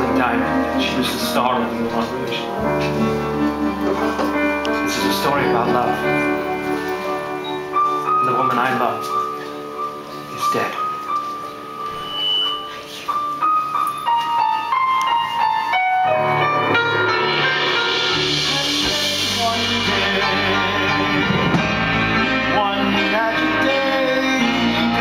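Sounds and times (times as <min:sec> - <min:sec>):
bass guitar: 0:00.0 - 0:07.5, 0:16.6 - 0:25.0
live band playing: 0:00.0 - 0:25.0.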